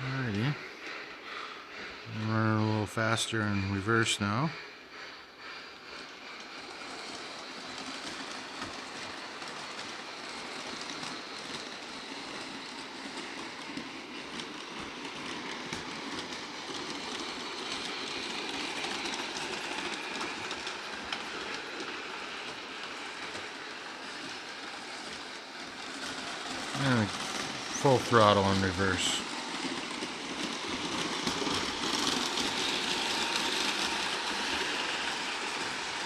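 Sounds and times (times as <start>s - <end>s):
model train motor whirring: 0.0s - 36.0s
wheels clicking over rail joints: 0.0s - 36.0s.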